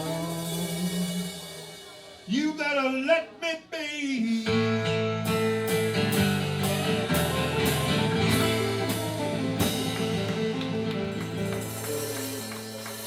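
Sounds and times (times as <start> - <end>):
drum kit steady beat: 0.0 - 2.6, 4.6 - 13.0
guitars holding notes: 4.6 - 13.0.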